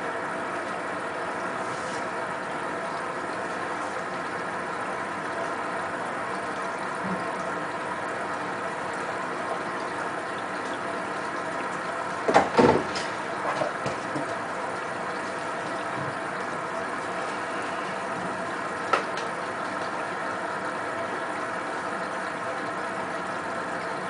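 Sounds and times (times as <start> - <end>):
washing machine motor hum: 0.0 - 24.0
splash or clunk: 12.3 - 14.3.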